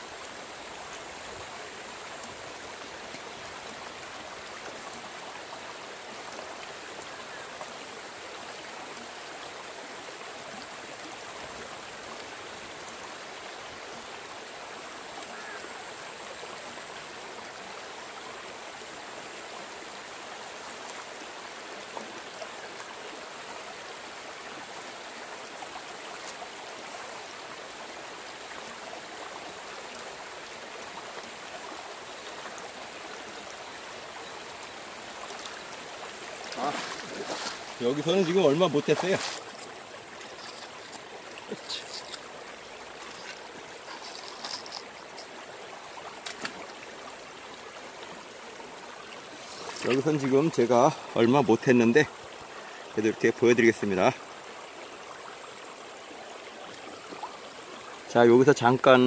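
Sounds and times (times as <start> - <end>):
stream rushing over gravel: 0.0 - 59.0
water washing in plastic pan: 36.4 - 42.2.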